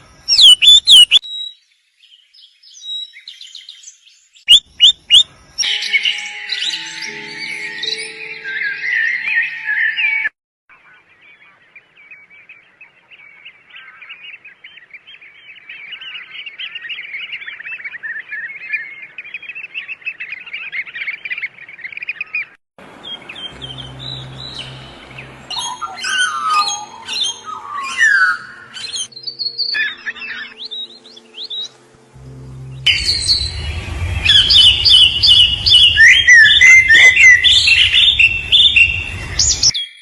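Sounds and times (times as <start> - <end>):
small birds chirping: 0.0 - 7.1, 10.7 - 31.8, 32.7 - 40.0
bird calls with sweeping notes: 0.0 - 40.0
steady low hum: 31.7 - 39.7.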